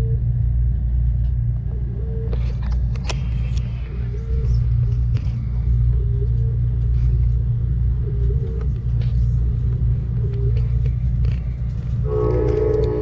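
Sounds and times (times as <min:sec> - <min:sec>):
train rumbling along track: 0:00.0 - 0:13.0
wheels clicking on rails: 0:04.6 - 0:13.0
train horn chord: 0:12.0 - 0:13.0.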